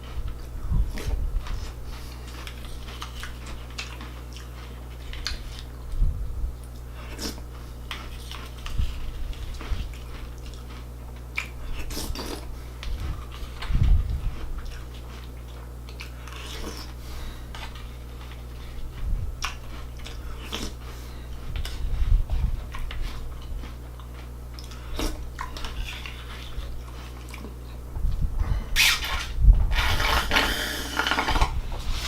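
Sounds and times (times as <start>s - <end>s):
steady low hum: 0.0s - 32.0s
person crunching cereal: 28.9s - 32.0s.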